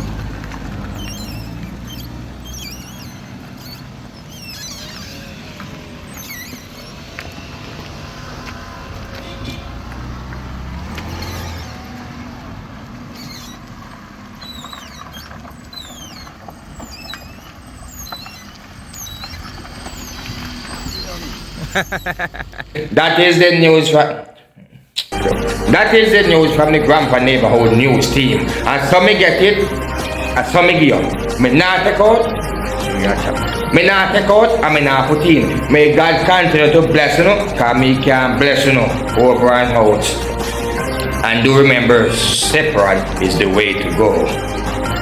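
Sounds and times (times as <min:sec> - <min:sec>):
high falling chirps: 0:00.0 - 0:07.1, 0:13.1 - 0:13.7, 0:14.4 - 0:22.6, 0:26.1 - 0:45.0
vehicle engine rumbling: 0:00.0 - 0:23.0, 0:25.2 - 0:45.0.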